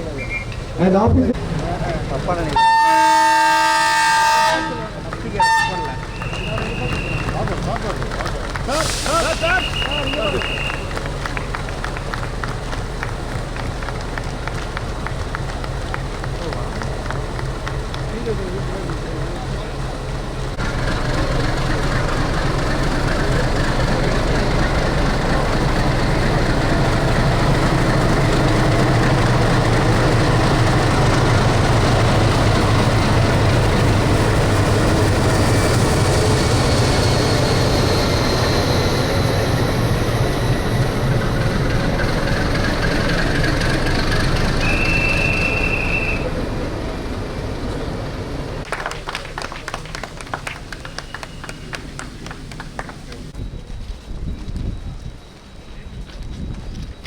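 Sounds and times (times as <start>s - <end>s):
locomotive rumbling: 0.0s - 57.0s
train whistle: 2.6s - 7.4s, 8.8s - 11.0s, 44.5s - 46.4s, 50.7s - 51.8s.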